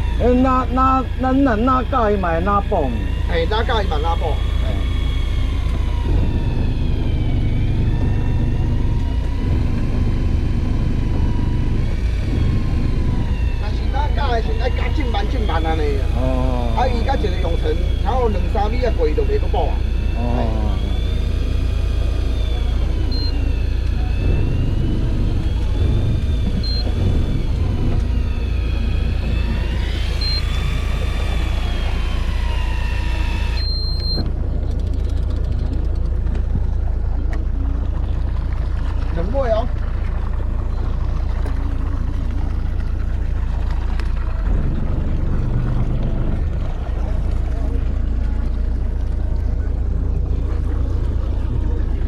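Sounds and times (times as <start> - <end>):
boat engine rumbling: 0.0 - 52.0
faint whine: 0.0 - 52.0
short electronic beep: 23.0 - 24.2, 26.0 - 27.0, 30.2 - 30.6, 33.5 - 34.3.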